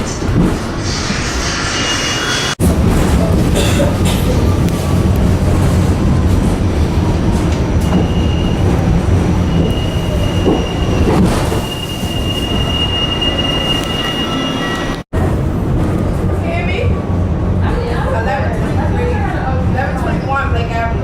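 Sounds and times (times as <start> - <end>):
subway train rumbling on track: 0.0 - 21.0
high wheel squeal: 0.9 - 2.6, 9.4 - 15.0.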